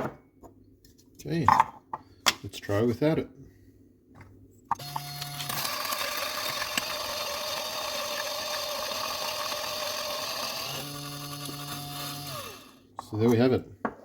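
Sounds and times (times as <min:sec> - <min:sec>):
coffee grinder whirring: 0:04.7 - 0:12.9.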